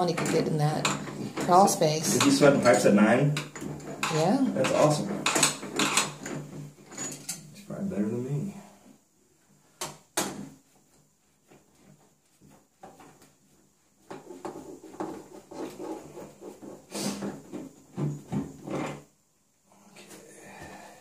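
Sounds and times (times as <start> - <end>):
metal parts clinking and rattling: 3.4 - 7.5.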